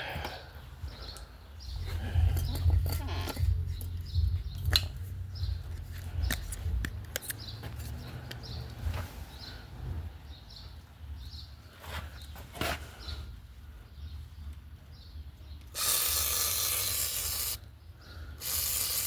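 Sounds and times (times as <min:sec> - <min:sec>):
small bird chirping: 0:00.8 - 0:09.6
low rumble: 0:01.6 - 0:07.1
sharp clicks and knocks: 0:02.3 - 0:08.4.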